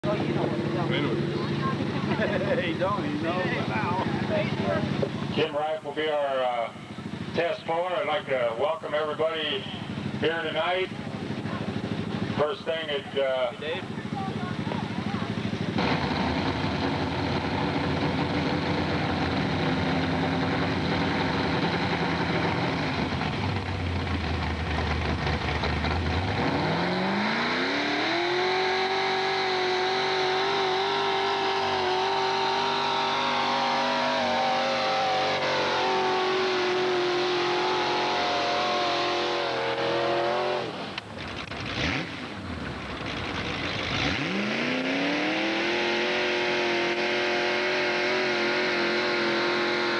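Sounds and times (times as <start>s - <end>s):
tractor engine revving: 0.0s - 49.9s.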